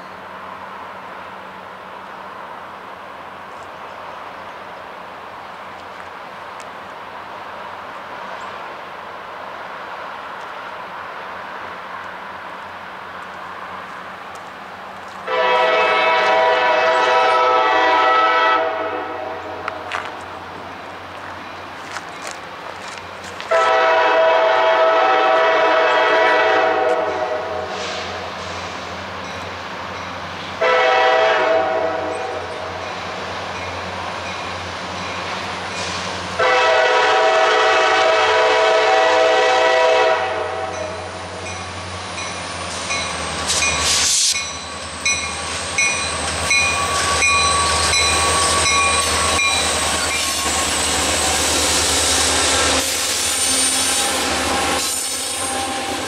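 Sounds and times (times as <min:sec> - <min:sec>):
locomotive air horn blasts: 0:15.2 - 0:19.9, 0:23.5 - 0:28.2, 0:30.6 - 0:32.4, 0:36.4 - 0:41.0
wheels clicking over rail joints: 0:19.6 - 0:23.6.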